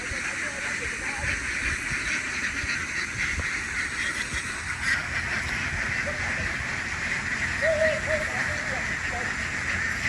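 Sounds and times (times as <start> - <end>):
flock of ducks quacking: 0.0 - 10.0.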